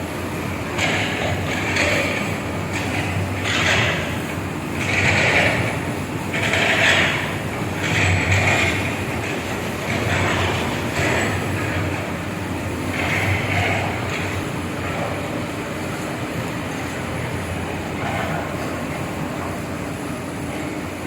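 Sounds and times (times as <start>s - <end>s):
diesel excavator engine: 0.0s - 21.0s.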